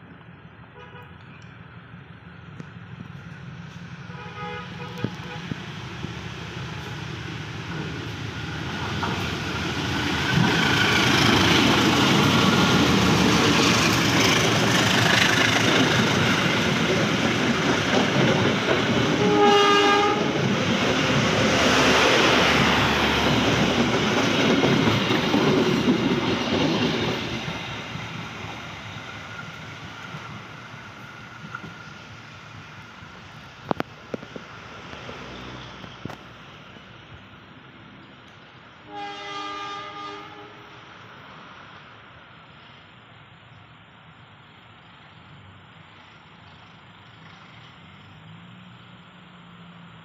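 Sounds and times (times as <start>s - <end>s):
train passing: 0.0s - 50.0s
train horn blast: 4.1s - 5.5s, 19.1s - 20.4s, 38.8s - 40.8s.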